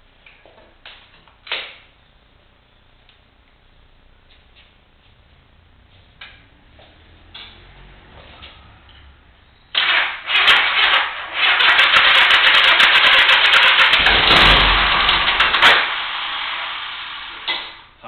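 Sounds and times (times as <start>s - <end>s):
motorcycle engine starting and running: 6.2s - 17.6s.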